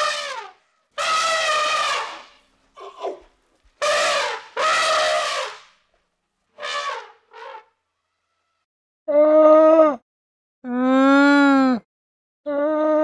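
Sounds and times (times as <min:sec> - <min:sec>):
elephant trumpeting: 0:00.0 - 0:03.2, 0:03.8 - 0:05.7, 0:06.6 - 0:07.7.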